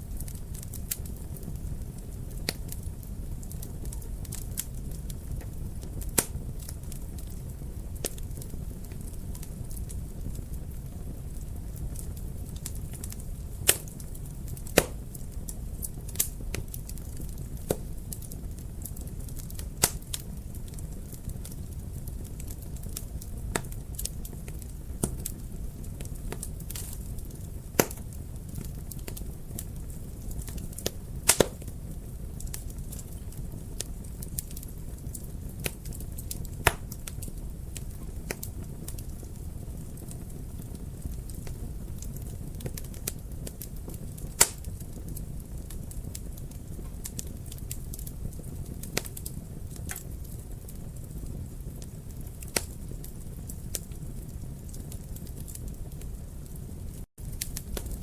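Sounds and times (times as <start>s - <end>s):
fire crackling and popping: 0.0s - 58.0s
low rumble of flames: 0.0s - 58.0s.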